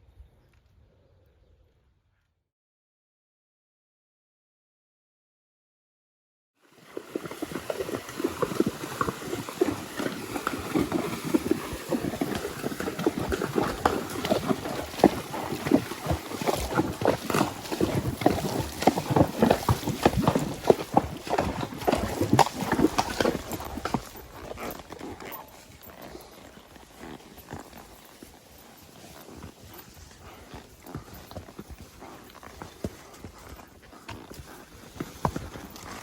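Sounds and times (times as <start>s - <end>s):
horse hoofbeats: 6.7s - 36.0s
outdoor noise: 7.0s - 36.0s.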